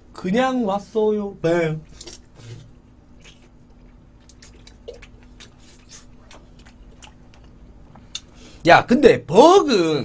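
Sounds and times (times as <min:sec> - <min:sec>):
person chewing food: 0:01.8 - 0:08.4.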